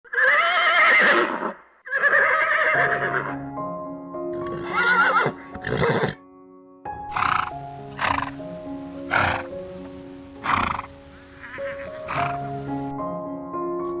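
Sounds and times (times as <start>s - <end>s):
horse whinnying: 0.1s - 3.4s, 4.4s - 6.2s
music with held notes: 2.8s - 14.0s.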